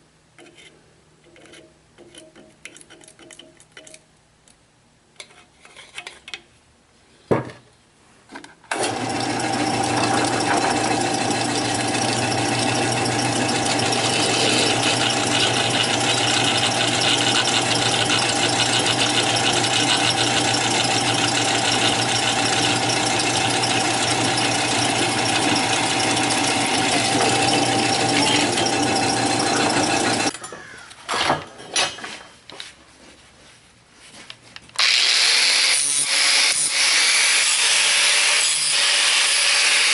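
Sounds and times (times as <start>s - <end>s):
shop machine motor running: 8.7s - 30.3s.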